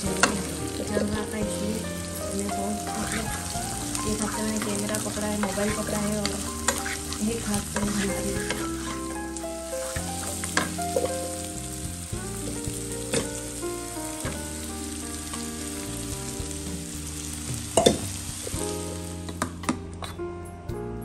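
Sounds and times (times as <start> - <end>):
vegetables sizzling in a pan: 0.0 - 19.6
background melody: 0.0 - 21.0
spatula scraping and knocking pan: 0.2 - 9.2.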